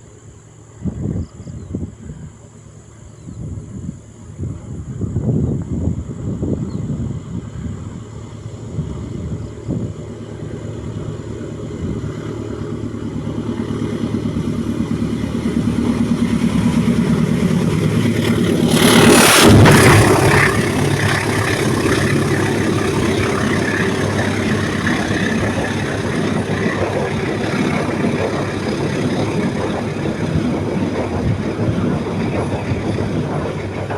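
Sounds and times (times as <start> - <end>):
diesel train engine: 0.0 - 33.9
loud rush of train: 0.0 - 33.9
train rumbling on rails: 0.0 - 33.9.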